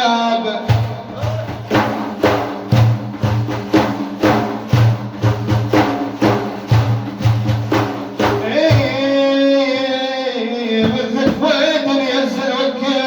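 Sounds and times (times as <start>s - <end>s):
heavy low drum beats: 0.6s - 9.2s, 10.8s - 11.9s
drums beating a rhythm: 0.6s - 9.4s, 10.8s - 12.0s.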